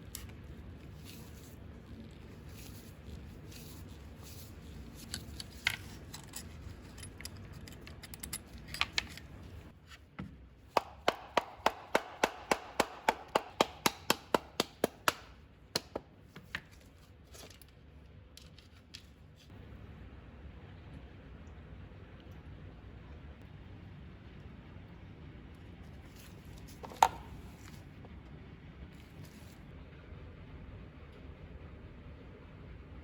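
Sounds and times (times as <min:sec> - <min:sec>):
metal parts and tools clinking: 0:03.6 - 0:09.7.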